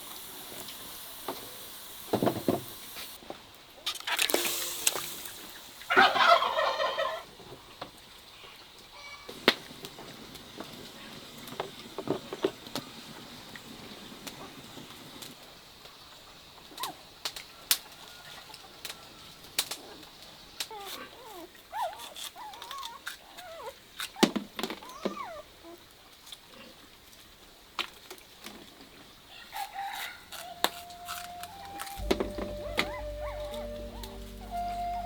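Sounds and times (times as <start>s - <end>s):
chickens clucking: 5.9s - 7.2s.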